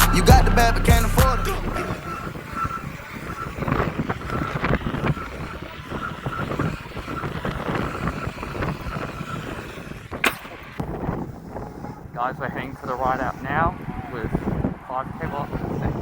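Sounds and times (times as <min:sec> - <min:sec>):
faint high whine: 0:00.0 - 0:16.0
road and tyre noise: 0:00.0 - 0:16.0
wind buffeting microphone: 0:00.0 - 0:16.0.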